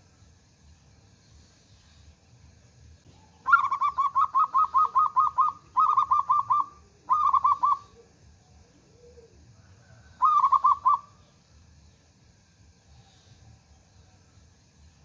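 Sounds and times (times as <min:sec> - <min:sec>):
dove singing: 0:03.0 - 0:12.1.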